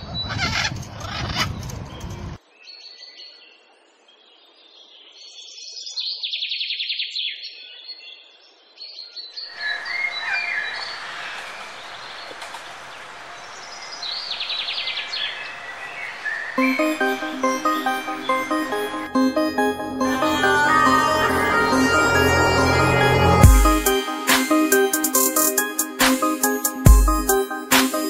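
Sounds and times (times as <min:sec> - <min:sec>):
small birds chirping: 0:00.0 - 0:17.2
bird trill: 0:09.4 - 0:27.7.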